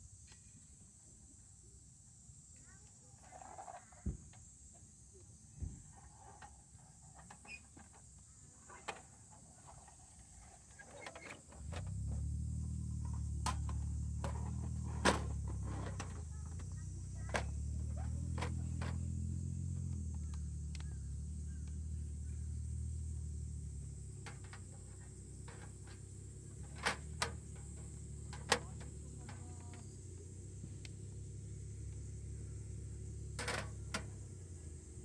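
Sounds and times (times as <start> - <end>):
sharp clicks and knocks: 13.0 - 19.2, 23.6 - 30.0, 33.4 - 34.3.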